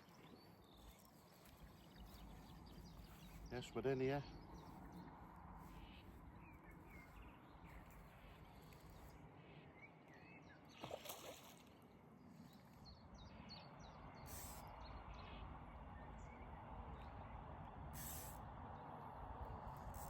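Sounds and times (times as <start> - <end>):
small birds chirping: 0.0 - 11.5.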